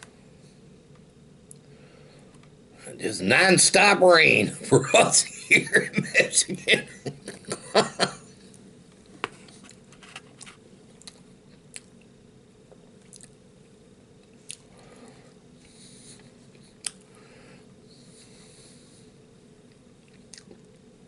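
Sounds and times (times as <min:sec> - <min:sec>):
man chewing food: 0:08.3 - 0:17.3, 0:19.5 - 0:20.9.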